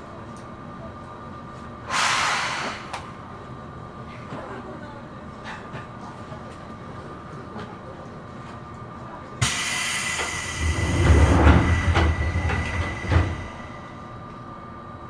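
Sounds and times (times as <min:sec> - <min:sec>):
electric train running: 0:09.4 - 0:14.4.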